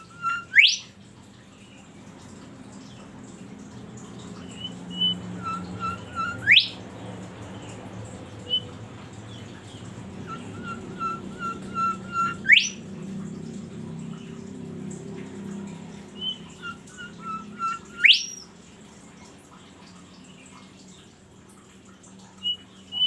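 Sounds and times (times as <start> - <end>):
songbird whistling: 0.0 - 0.9, 4.4 - 6.8, 8.5 - 8.7, 10.2 - 12.8, 16.1 - 18.5, 22.4 - 23.0.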